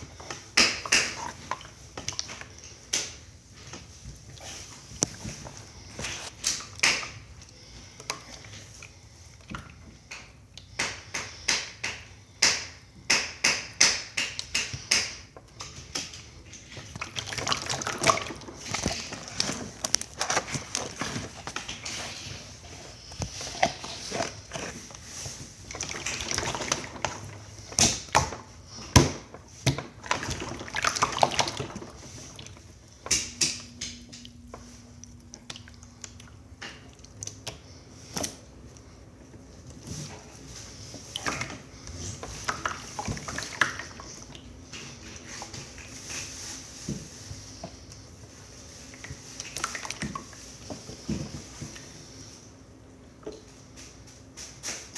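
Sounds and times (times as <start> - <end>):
slime squelching: 16.4 - 46.3.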